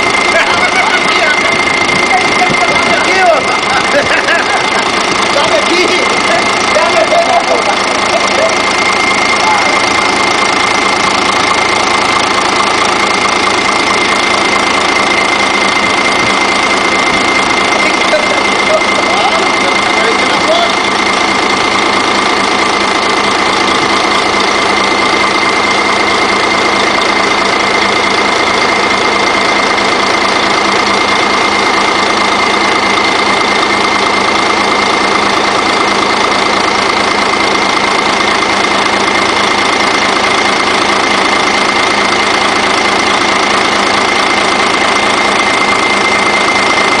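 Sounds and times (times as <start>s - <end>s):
high whine: 0.0s - 21.9s
diesel engine running: 0.0s - 47.0s.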